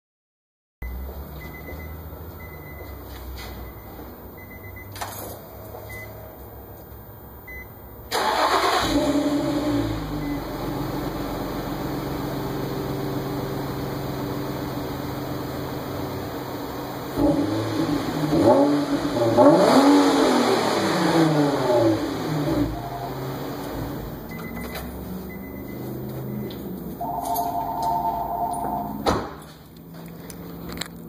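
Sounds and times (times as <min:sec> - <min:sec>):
car engine starting and idling: 0:00.8 - 0:31.0
short beeps: 0:22.7 - 0:23.7, 0:24.3 - 0:29.0.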